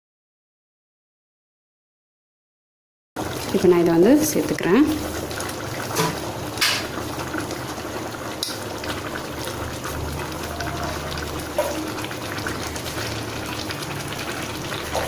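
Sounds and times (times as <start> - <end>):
gravy bubbling in a pot: 3.2 - 15.0.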